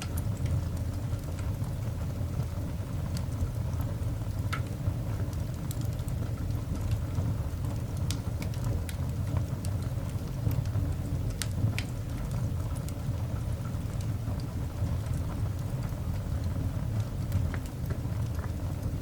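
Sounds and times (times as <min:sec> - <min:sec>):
fire crackles and pops: 0:00.0 - 0:19.0
fire low rumble: 0:00.0 - 0:19.0.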